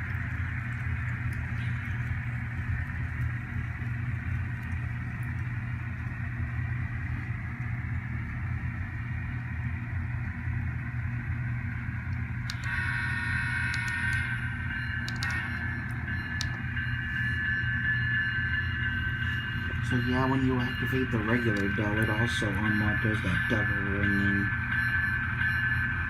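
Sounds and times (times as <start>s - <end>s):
model train diesel engine sound: 0.0s - 26.0s
locomotive bell ringing: 12.6s - 26.0s.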